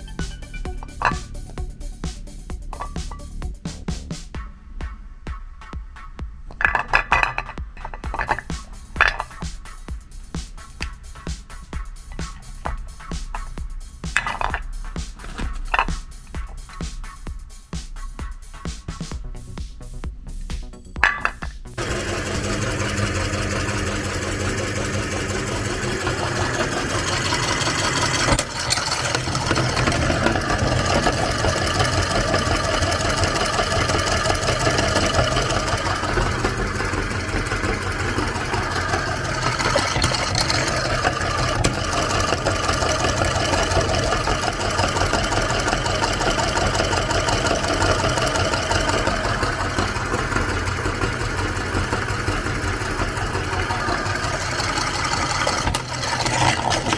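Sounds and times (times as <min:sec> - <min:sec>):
electric meat grinder running: 0:21.8 - 0:56.9.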